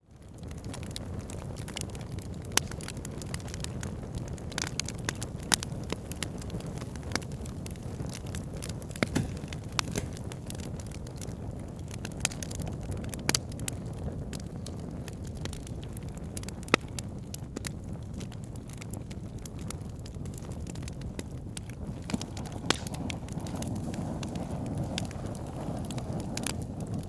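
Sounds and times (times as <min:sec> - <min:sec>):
fire crackling and popping: 0:00.0 - 0:27.0
fire flames rumbling: 0:00.0 - 0:27.0.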